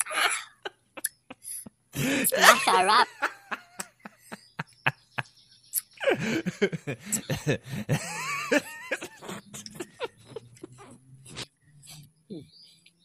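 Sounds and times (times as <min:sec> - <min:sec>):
throaty cough-like vocal noises: 0:00.0 - 0:02.9.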